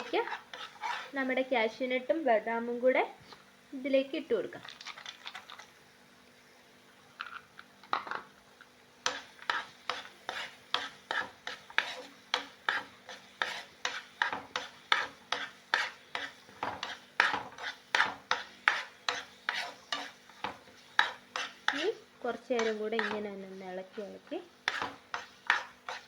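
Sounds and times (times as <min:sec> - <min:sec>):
spoon scraping a pan: 0:00.0 - 0:01.3, 0:09.0 - 0:26.0.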